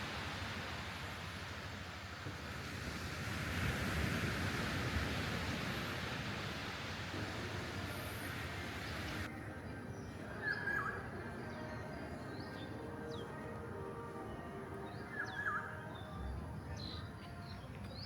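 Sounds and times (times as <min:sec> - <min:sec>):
steady rushing outdoor noise: 0:00.0 - 0:18.0.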